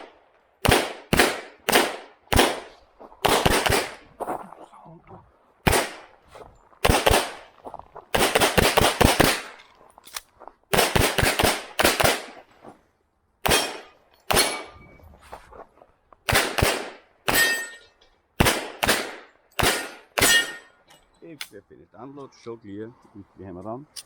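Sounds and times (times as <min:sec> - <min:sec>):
pistol shots: 0:00.0 - 0:04.1, 0:05.6 - 0:06.1, 0:06.8 - 0:07.5, 0:08.1 - 0:09.6, 0:10.7 - 0:12.4, 0:13.4 - 0:14.8, 0:16.3 - 0:17.8, 0:18.4 - 0:20.7.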